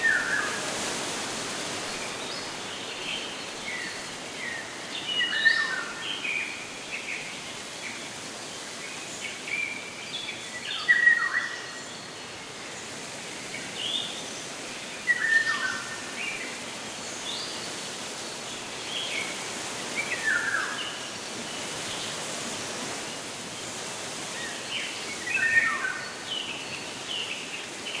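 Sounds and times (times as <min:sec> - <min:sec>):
outdoor hiss: 0:00.0 - 0:28.0.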